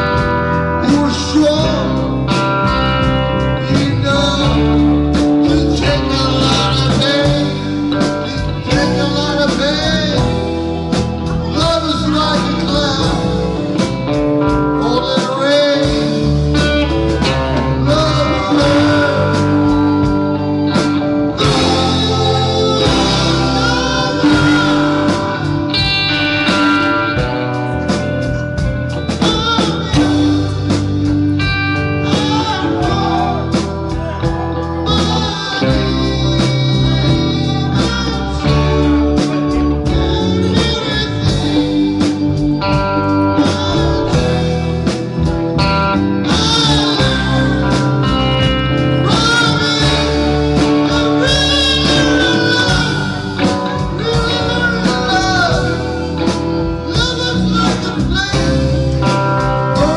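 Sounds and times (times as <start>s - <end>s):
blues-rock band playing: 0.0s - 59.9s
lead guitar bending pitch: 0.0s - 59.9s.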